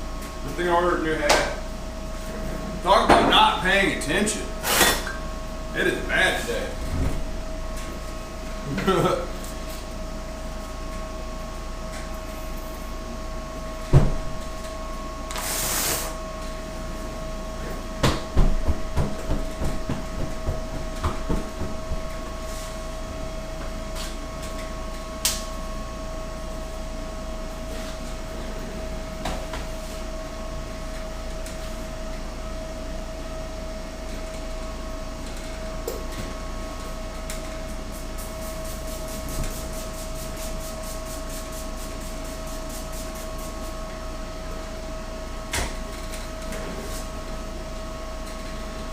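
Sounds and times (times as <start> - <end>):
electrical hum: 0.0 - 48.9
short hiss: 15.3 - 16.2.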